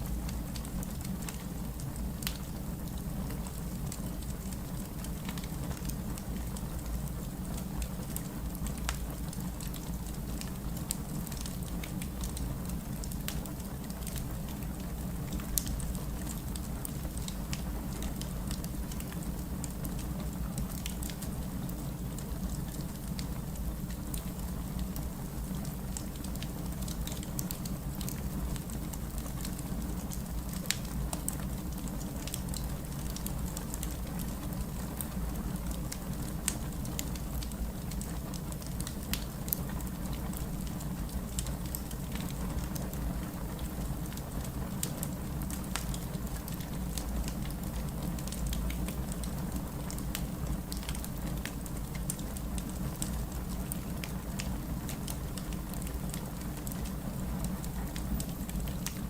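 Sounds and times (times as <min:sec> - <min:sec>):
steady rain: 0:00.0 - 0:59.0
wood fire crackling: 0:00.0 - 0:59.0.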